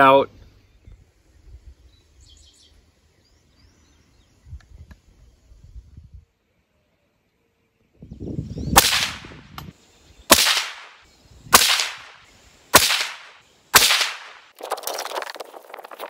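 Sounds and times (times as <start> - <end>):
gunshots: 8.8 - 9.4, 10.3 - 14.5
dense crackling noise: 12.8 - 16.0.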